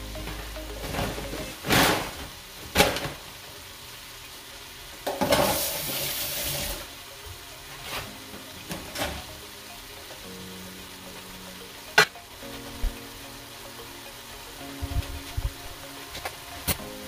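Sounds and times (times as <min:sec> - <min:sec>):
chicken sizzling in a pot: 0:01.5 - 0:17.0.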